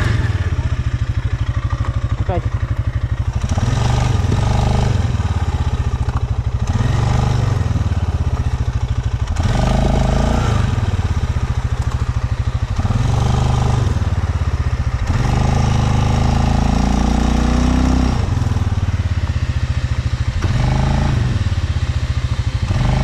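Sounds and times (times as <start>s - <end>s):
quad bike engine revving: 0.0s - 23.0s.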